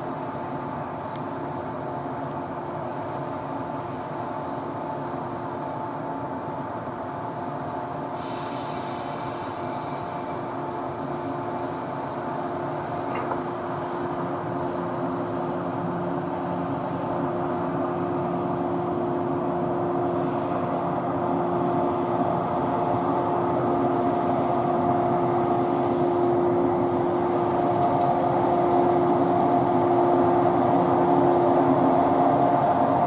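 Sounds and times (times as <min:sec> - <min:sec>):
electric train humming: 0:00.0 - 0:33.0.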